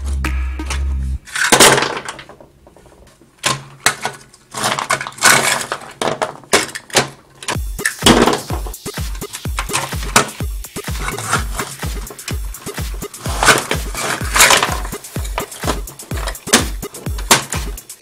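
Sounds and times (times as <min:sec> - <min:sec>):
background music with low beat: 0:00.0 - 0:01.2, 0:07.6 - 0:18.0
plastic toys clattering and scraping: 0:01.2 - 0:08.4, 0:09.6 - 0:18.0.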